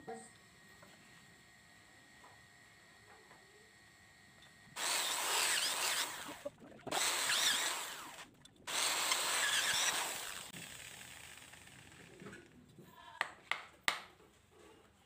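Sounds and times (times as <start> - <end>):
power tool with high squeals: 4.8 - 10.6.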